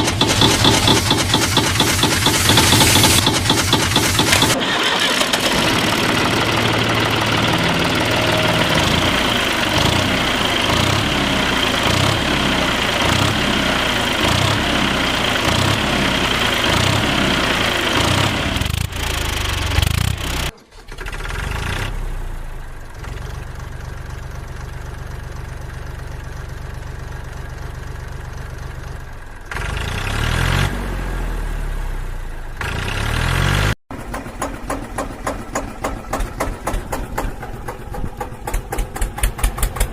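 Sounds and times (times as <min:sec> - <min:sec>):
engine idling: 0:00.0 - 0:30.1, 0:33.9 - 0:39.9
vehicle engine chugging: 0:00.0 - 0:30.4, 0:32.2 - 0:39.9.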